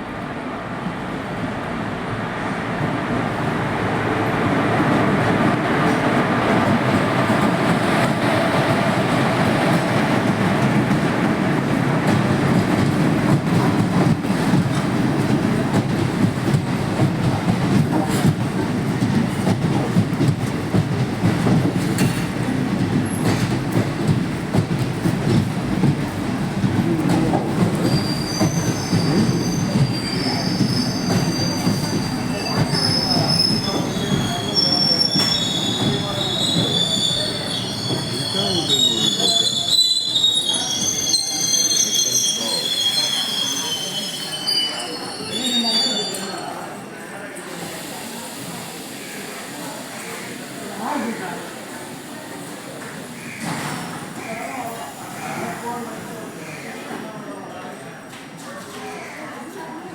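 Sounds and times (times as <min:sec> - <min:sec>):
train wheels clattering on rails: 0:04.8 - 0:41.5
high wheel squeal: 0:27.7 - 0:46.7.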